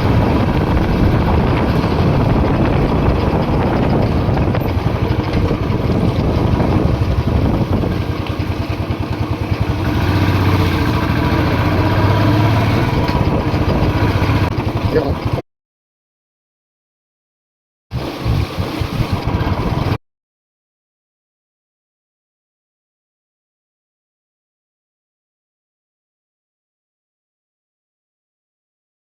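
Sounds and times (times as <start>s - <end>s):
motorcycle engine running: 0.0s - 15.4s, 17.9s - 20.0s
rush of noise: 0.0s - 15.4s.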